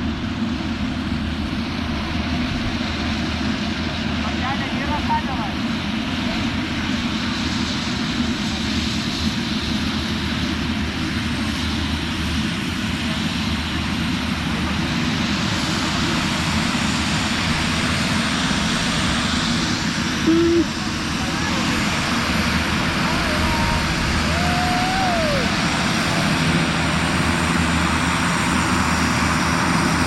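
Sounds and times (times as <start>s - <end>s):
turboprop aircraft engine drone: 0.0s - 30.0s.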